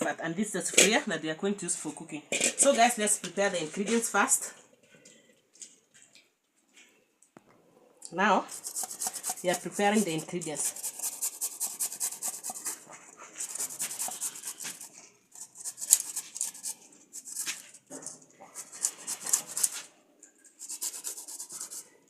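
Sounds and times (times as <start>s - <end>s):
vegetable being scraped: 8.4s - 22.0s.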